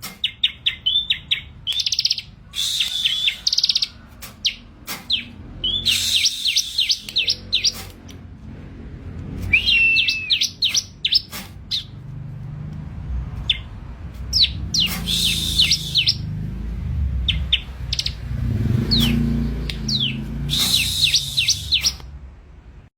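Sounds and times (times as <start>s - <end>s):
bird chirping: 0.0s - 8.2s, 9.5s - 12.0s, 13.4s - 22.1s
low rumble: 11.9s - 22.8s.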